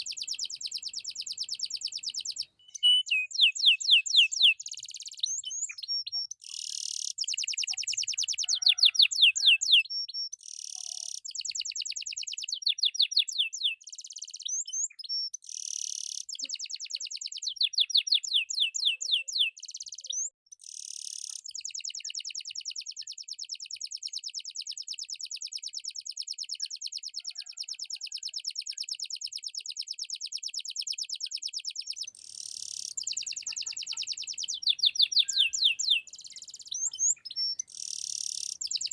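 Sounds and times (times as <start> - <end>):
canary singing: 0.0 - 22.2, 30.7 - 38.9.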